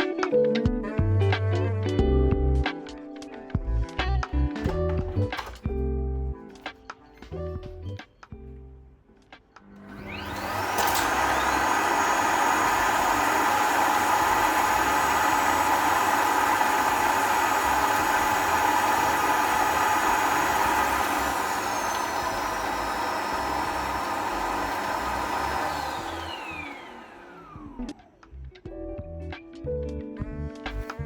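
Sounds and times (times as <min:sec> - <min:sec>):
vacuum motor whine: 0:09.8 - 0:28.2.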